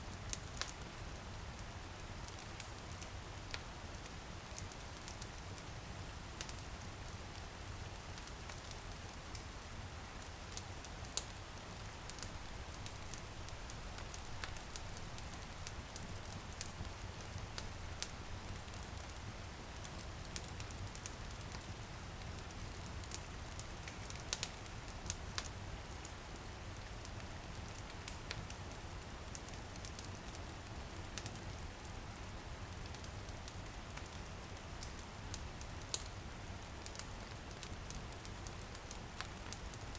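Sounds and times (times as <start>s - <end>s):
light rain on window pane: 0.1s - 39.9s
wood fire crackling: 0.2s - 39.9s.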